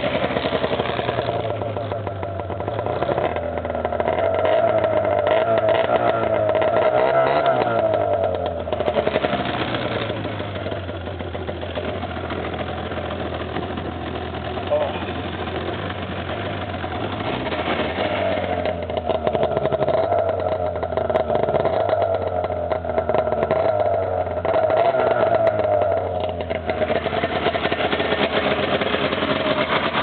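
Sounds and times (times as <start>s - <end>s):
snowmobile engine running: 0.0s - 30.0s.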